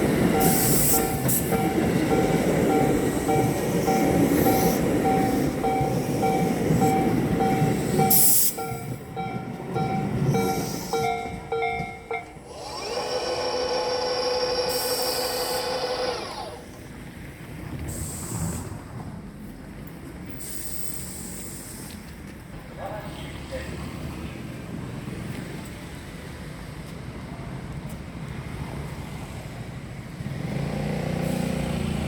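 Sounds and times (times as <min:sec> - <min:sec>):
electric train rumbling past: 0:00.0 - 0:22.2
level crossing bell ringing: 0:00.3 - 0:12.5.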